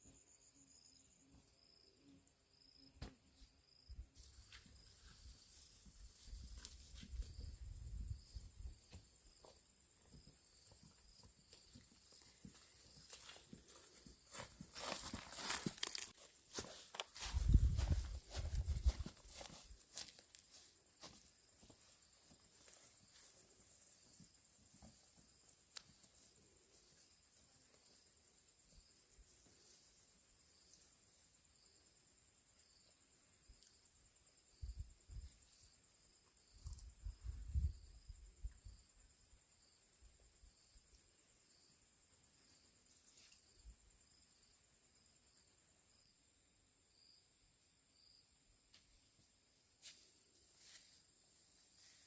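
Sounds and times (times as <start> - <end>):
faint low thumps: 17.2 - 19.0.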